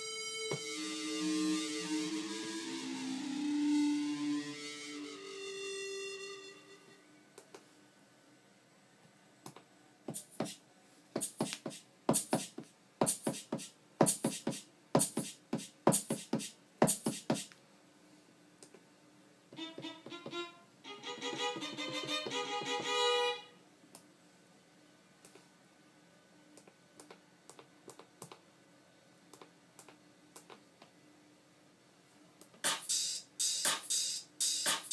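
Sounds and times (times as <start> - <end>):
drum samples: 0.4 - 4.8, 11.2 - 17.5, 19.6 - 23.0, 32.6 - 34.9.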